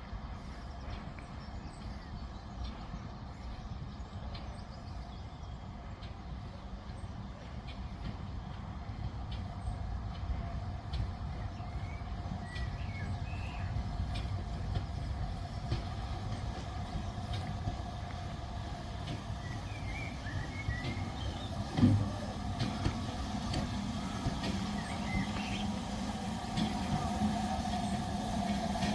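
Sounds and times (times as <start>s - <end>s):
train rumbling on tracks: 0.0s - 28.9s
light clicks of wheels: 5.9s - 25.6s.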